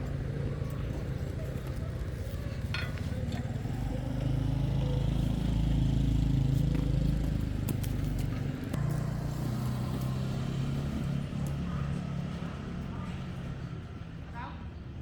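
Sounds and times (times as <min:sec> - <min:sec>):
engine running: 0:00.0 - 0:13.6.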